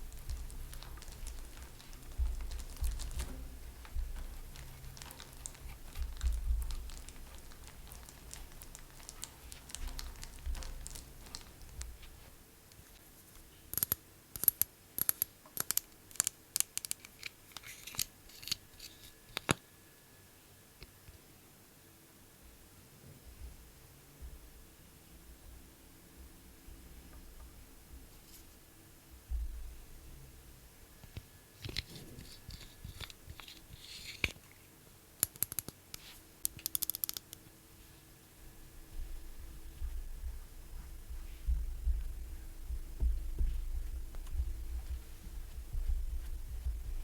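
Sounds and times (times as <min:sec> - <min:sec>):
makeup tools clicking: 0:13.8 - 0:18.6, 0:35.2 - 0:37.4
scratchy rubbing of makeup items: 0:31.6 - 0:34.6.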